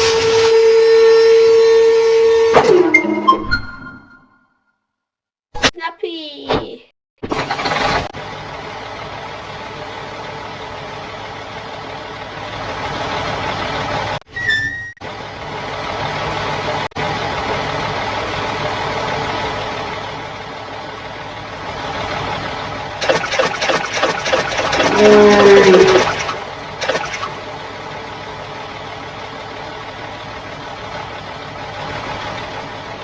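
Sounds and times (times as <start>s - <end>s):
truck engine running: 7.2s - 14.2s, 15.0s - 33.0s.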